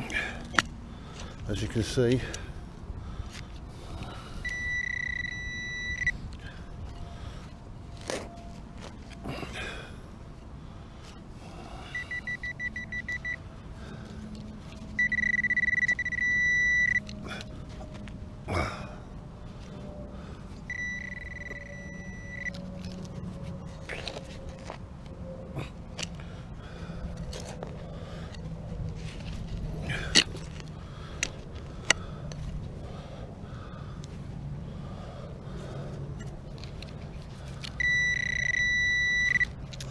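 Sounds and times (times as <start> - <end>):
metal detector beeping: 4.4 - 6.2, 11.9 - 13.4, 14.9 - 17.2, 20.6 - 23.2, 37.7 - 39.6.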